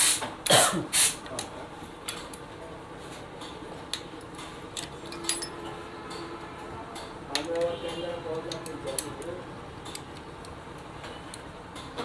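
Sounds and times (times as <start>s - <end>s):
light clicks and taps: 7.0s - 12.0s.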